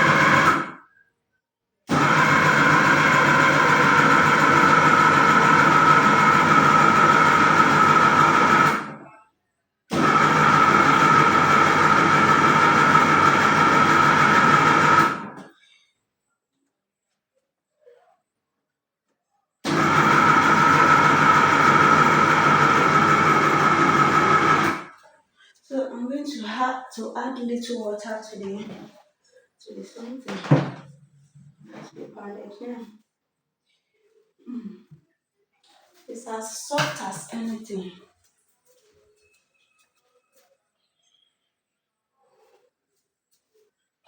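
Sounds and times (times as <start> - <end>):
machine pounding yam: 0.0 - 0.7, 1.9 - 9.0, 10.0 - 15.3, 19.7 - 24.9.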